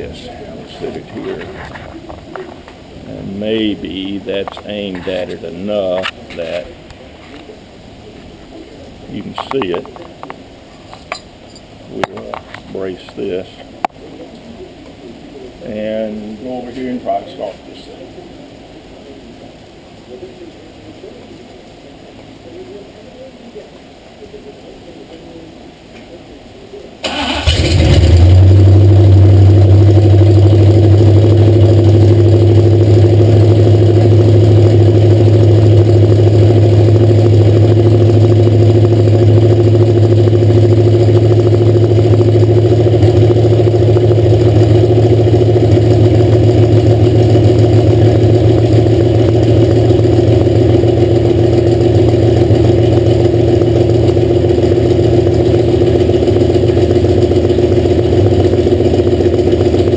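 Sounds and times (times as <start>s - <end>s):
race car engine running steadily: 27.5s - 59.9s.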